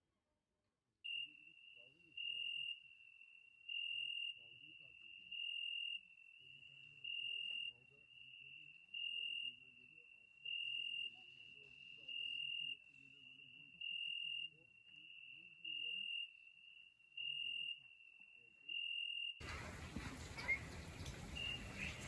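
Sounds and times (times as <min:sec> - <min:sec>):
cricket trilling: 0:01.1 - 0:19.4
faint murmuring voices: 0:19.4 - 0:22.0.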